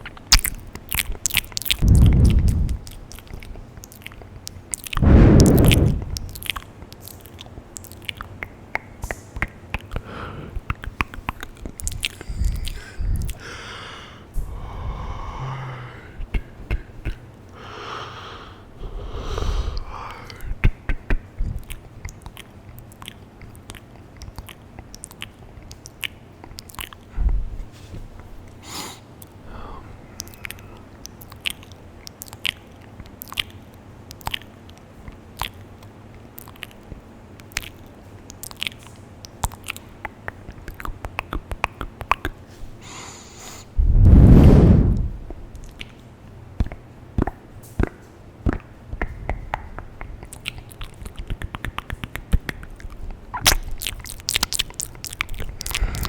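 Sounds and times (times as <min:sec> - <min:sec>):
wet tongue and lip clicks: 0:00.0 - 0:13.5, 0:16.2 - 0:17.6, 0:19.3 - 0:27.4, 0:30.2 - 0:42.5, 0:44.7 - 0:56.0
breathy puffs: 0:11.9 - 0:17.0.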